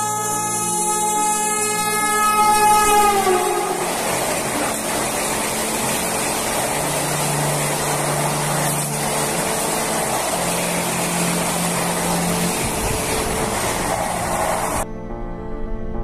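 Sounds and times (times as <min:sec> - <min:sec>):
electric train rushing past: 0:00.0 - 0:14.9.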